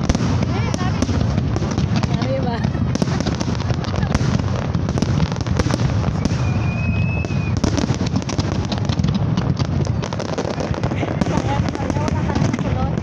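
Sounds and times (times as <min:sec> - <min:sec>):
fireworks bursting and crackling: 0:00.0 - 0:13.0
high firework whistle: 0:05.6 - 0:08.2.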